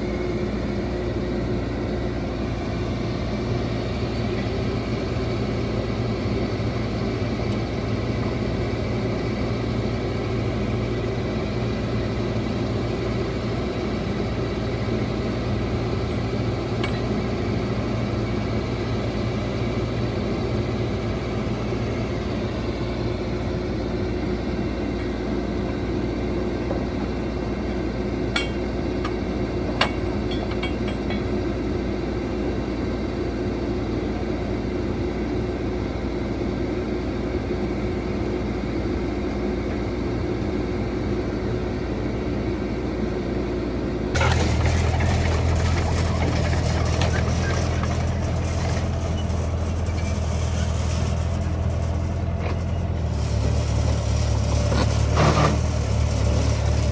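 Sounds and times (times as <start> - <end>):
construction machine diesel engine: 0.0 - 56.9.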